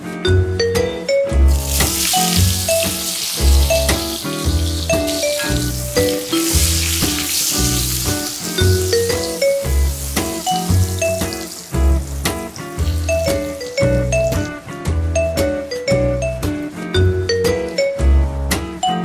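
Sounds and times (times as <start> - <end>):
light jazz music: 0.0 - 19.0
vegetables sizzling in hot oil: 1.5 - 14.6.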